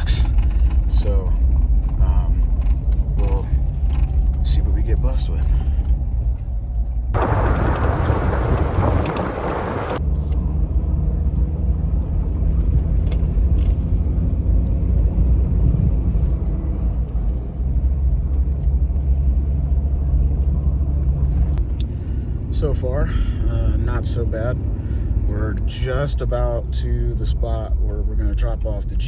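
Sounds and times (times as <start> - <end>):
car engine and road drone: 0.0 - 29.0
loud rushing noise: 7.2 - 10.0.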